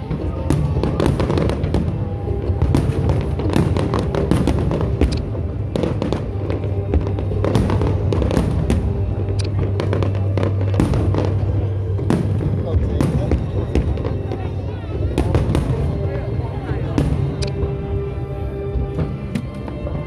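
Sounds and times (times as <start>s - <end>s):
fireworks bursting and crackling: 0.0s - 20.0s
music playing: 0.0s - 20.0s.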